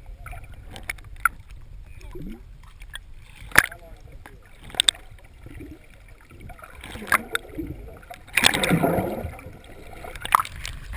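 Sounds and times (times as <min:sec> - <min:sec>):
water splashing against boat: 0:00.0 - 0:10.9.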